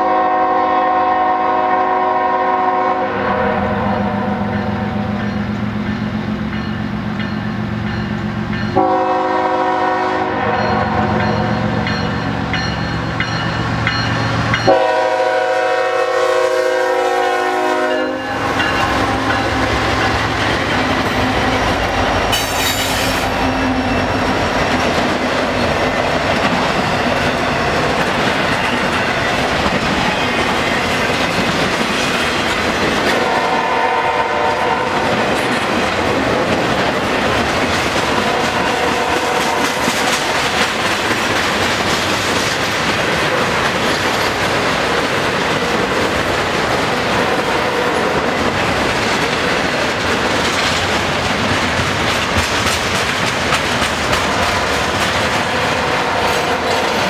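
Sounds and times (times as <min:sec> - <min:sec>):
locomotive air horn blasts: 0:00.0 - 0:05.1, 0:08.8 - 0:11.0, 0:14.6 - 0:20.1, 0:22.3 - 0:23.9, 0:33.1 - 0:35.1, 0:38.3 - 0:39.8
steel wheels rushing on rail: 0:00.0 - 0:57.0.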